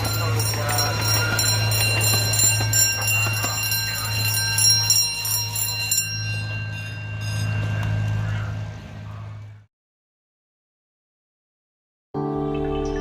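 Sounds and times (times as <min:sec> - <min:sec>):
bell ringing rapidly: 0:00.0 - 0:08.6.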